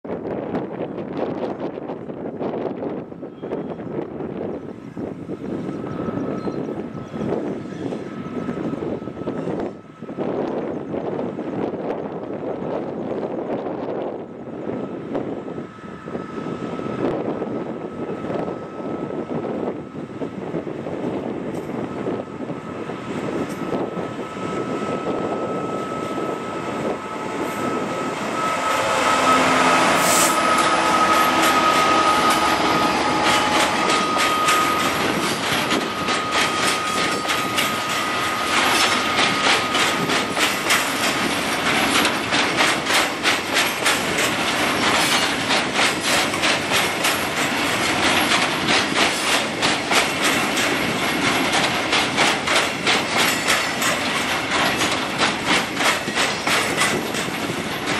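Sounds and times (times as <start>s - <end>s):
diesel locomotive engine: 0.0s - 57.9s
high squeal from train: 2.4s - 57.9s
wheels clattering over rail joints: 30.4s - 57.9s.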